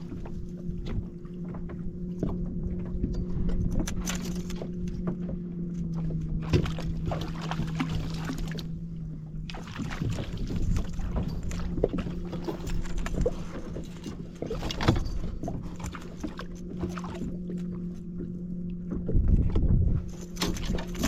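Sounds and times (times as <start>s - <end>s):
water splashing and knocking: 0.0s - 18.3s, 18.9s - 21.0s
boat engine hum: 0.0s - 21.0s.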